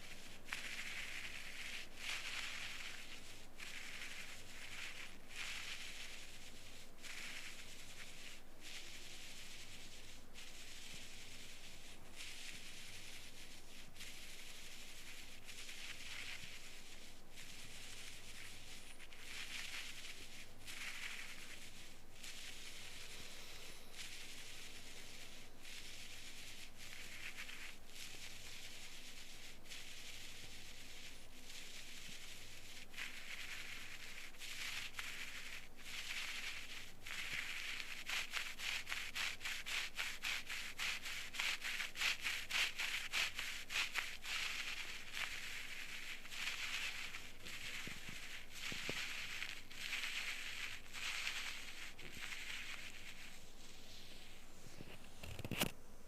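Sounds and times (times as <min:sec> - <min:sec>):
scraping inside ear canal: 0:00.0 - 0:55.8
small crackling clicks: 0:54.0 - 0:55.8.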